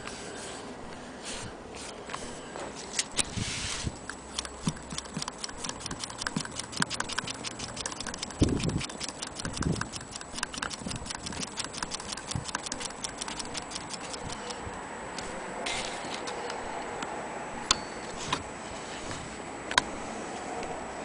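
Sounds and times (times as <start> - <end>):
sewing machine ticking: 4.3 - 14.5.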